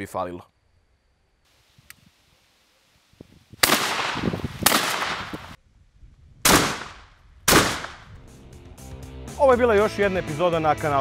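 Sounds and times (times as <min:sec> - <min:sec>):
shotgun shots echoing: 0:03.6 - 0:05.6, 0:06.4 - 0:08.1.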